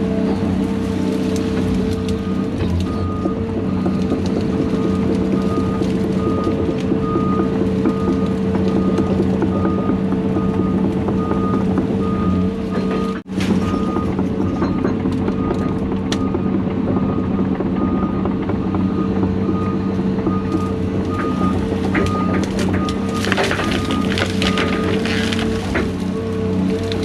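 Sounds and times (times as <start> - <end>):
heavy diesel equipment running: 0.0 - 27.0
backup alarm beeping: 4.6 - 25.0.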